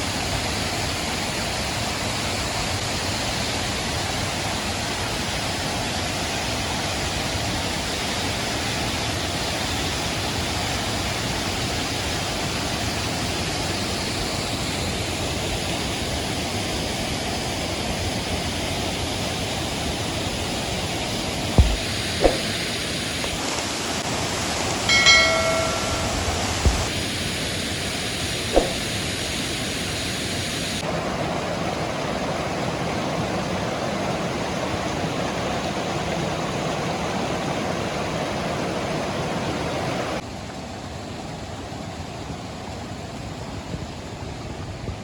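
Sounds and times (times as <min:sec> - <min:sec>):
sharp knock: 0:21.6 - 0:22.6, 0:28.5 - 0:29.0
waterfall rushing: 0:21.6 - 0:26.8.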